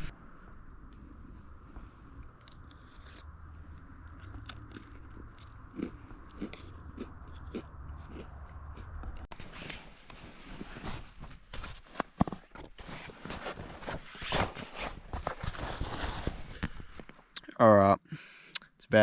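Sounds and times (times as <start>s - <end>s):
food crunching: 2.2s - 9.3s
person chewing food: 2.3s - 9.3s.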